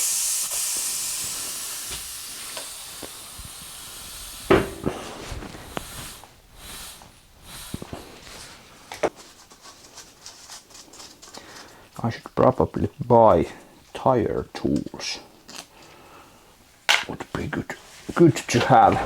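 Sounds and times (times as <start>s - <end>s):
air hissing out of tyre: 0.0s - 8.6s
sharp knock: 4.5s - 5.2s.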